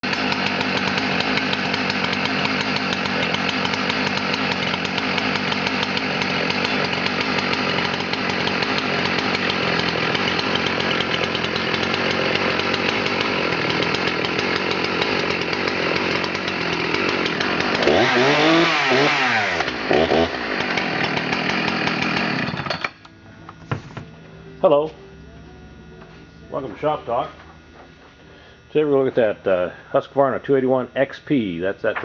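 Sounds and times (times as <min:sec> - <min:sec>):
chainsaw cutting wood: 0:00.0 - 0:23.2.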